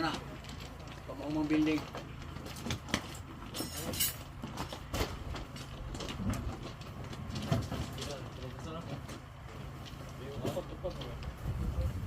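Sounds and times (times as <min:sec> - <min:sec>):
steady low rumble: 0:05.1 - 0:12.0.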